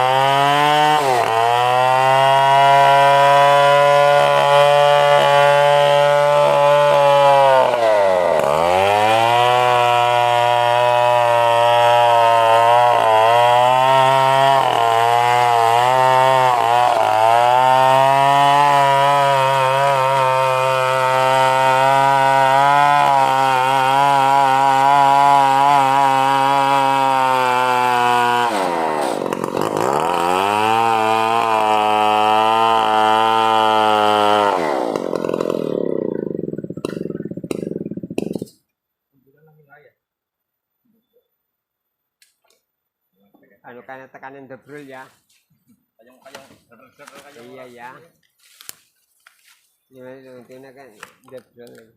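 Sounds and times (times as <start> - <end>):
chainsaw engine at high revs: 0.0 - 38.6.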